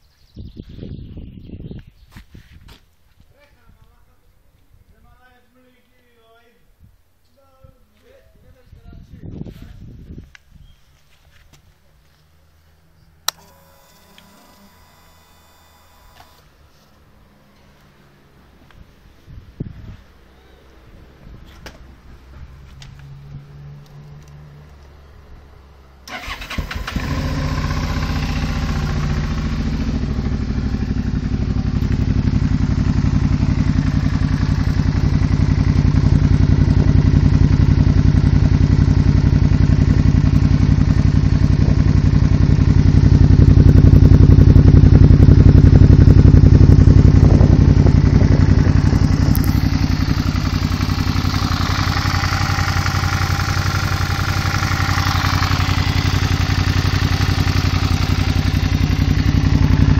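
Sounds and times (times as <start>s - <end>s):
motorcycle engine running: 13.3s - 16.2s, 26.1s - 59.9s.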